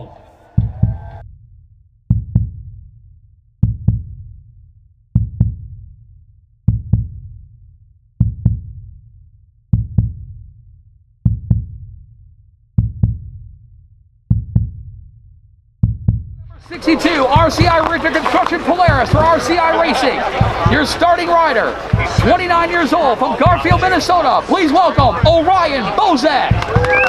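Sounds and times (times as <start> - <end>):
heartbeat double thump: 0.6 - 1.2, 2.1 - 2.8, 3.6 - 4.3, 5.2 - 5.8, 6.7 - 7.4, 8.2 - 8.8, 9.7 - 10.4, 11.2 - 11.9, 12.8 - 13.4, 14.3 - 15.0, 15.8 - 16.5, 17.3 - 19.6, 20.4 - 21.1, 21.8 - 22.7, 23.4 - 24.1, 25.0 - 25.7, 26.5 - 27.0.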